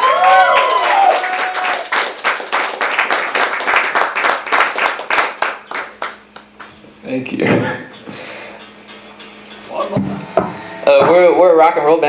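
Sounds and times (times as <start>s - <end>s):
small audience clapping: 0.0s - 6.8s.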